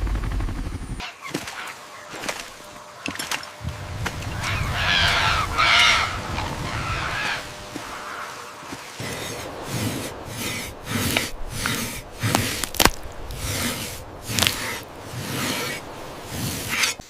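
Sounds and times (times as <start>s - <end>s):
rough scraping strokes: 3.6s - 17.0s.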